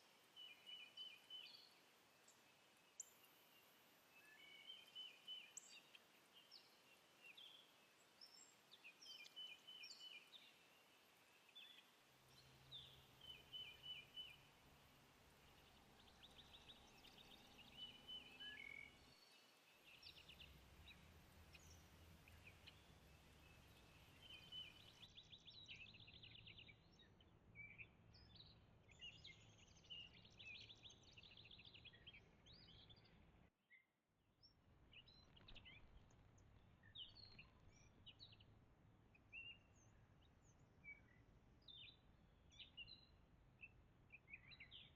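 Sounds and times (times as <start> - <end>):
faint songbird calls: 0.0 - 33.3.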